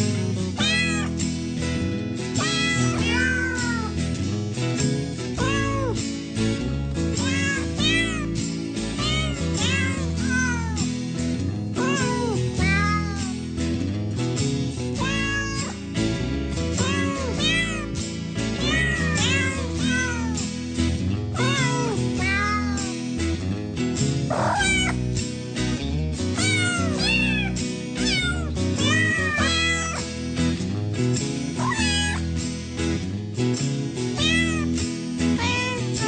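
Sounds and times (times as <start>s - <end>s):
background music: 0.0s - 36.0s
cat meowing: 0.6s - 1.2s, 2.4s - 4.0s, 5.4s - 6.0s, 7.2s - 8.4s, 9.0s - 10.9s, 11.8s - 13.3s, 15.0s - 15.8s, 16.8s - 18.0s, 18.6s - 20.4s, 21.4s - 23.0s, 24.3s - 25.0s, 26.4s - 30.0s, 31.6s - 32.3s, 34.2s - 34.7s, 35.4s - 36.0s.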